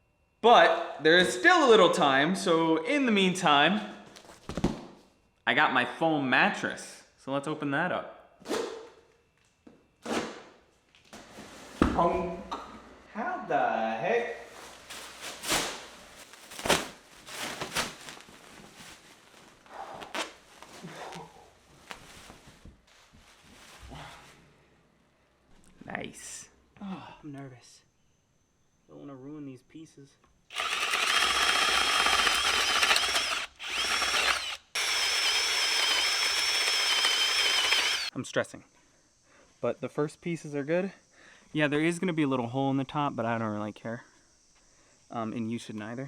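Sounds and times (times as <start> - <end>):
plastic packaging crinkling and tearing: 14.5 - 23.7
power tool high whine: 30.5 - 38.1.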